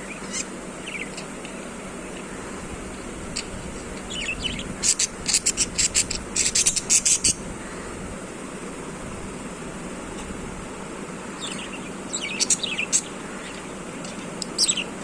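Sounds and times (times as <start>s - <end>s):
budgie chirping: 0.0s - 1.3s, 4.1s - 7.5s, 11.3s - 15.0s.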